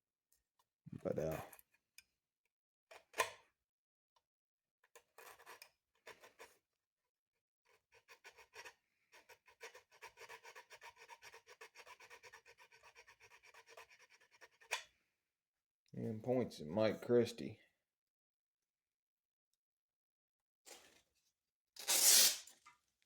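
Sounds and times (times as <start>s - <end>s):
sandpaper rubbing on metal: 21.8s - 22.4s.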